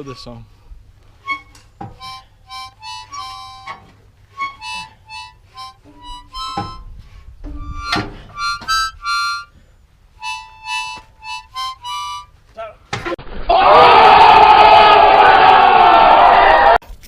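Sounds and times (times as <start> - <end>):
harmonica playing a tune: 1.1 - 12.4.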